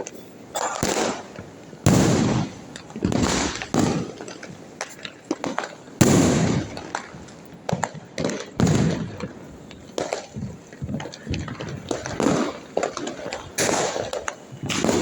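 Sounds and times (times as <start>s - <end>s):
fireworks banging: 0.0s - 15.0s
fireworks popping and crackling: 0.0s - 15.0s.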